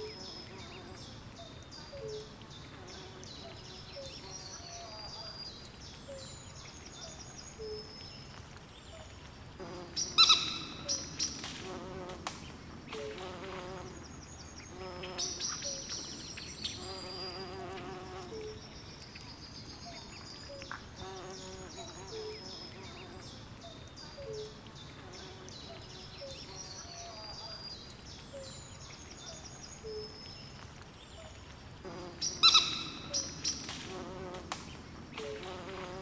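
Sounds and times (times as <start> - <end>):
insect chirps: 9.2 - 12.2.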